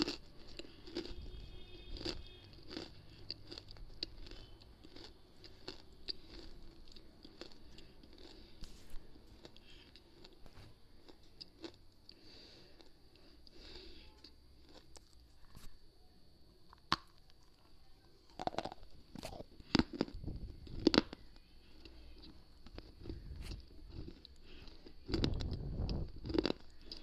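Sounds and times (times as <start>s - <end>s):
biting and crunching brittle pieces: 0.0s - 8.7s, 18.3s - 27.0s
gritty chewing: 0.0s - 15.8s, 18.3s - 27.0s.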